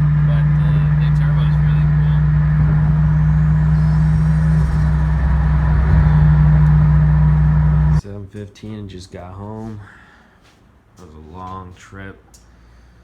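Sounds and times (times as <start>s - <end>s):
car engine cruising drone: 0.0s - 8.0s.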